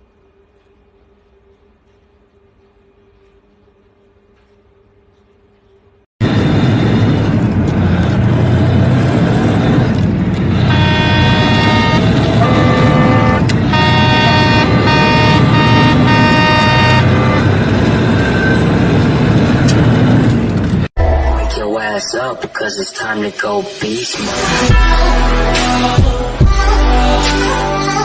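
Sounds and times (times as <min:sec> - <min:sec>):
road and traffic noise: 0:06.2 - 0:21.0
car horn honking: 0:10.5 - 0:17.7.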